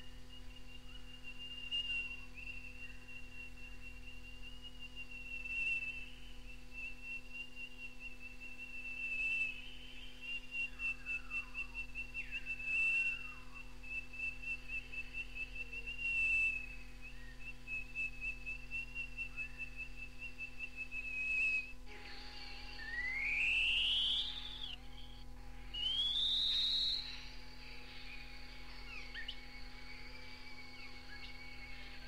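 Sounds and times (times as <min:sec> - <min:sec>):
bird whistled trill: 0:00.0 - 0:32.0
rising bird whistle: 0:00.0 - 0:32.0
tape hum: 0:19.6 - 0:32.0.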